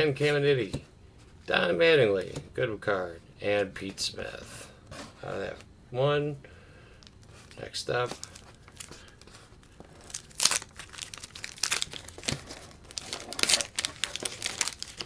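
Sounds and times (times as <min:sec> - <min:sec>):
wax paper wrapper tearing and crinkling: 0:08.0 - 0:15.0.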